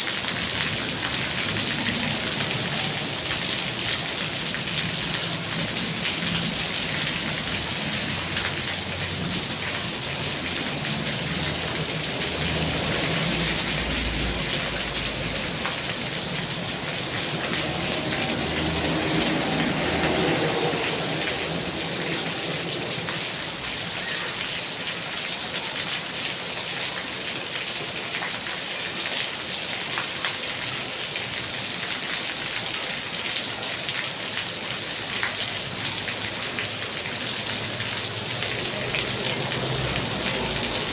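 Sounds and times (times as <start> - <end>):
heavy rain pattering: 0.0 - 40.9.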